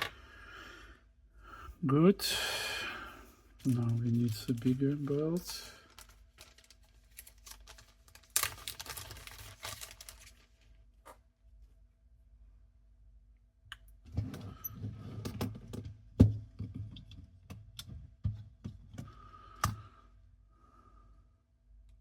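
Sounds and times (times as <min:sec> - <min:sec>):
rustling: 0:03.6 - 0:10.6.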